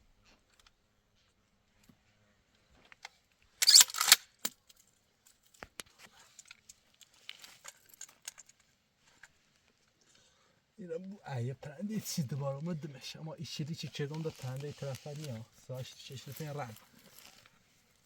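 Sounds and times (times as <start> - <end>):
soft rustles: 13.6 - 18.0
loud rustling crunch: 13.8 - 18.0.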